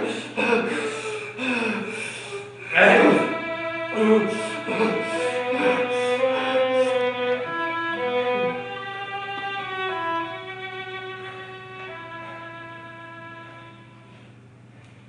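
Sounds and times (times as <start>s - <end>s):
slow violin music: 2.4s - 14.4s.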